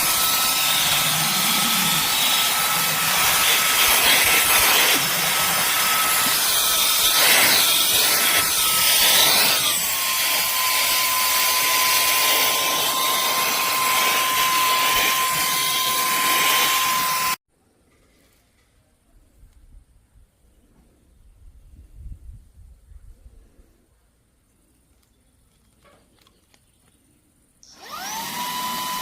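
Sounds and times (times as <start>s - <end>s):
handheld vacuum cleaner whine: 0.0s - 17.4s, 27.6s - 29.0s.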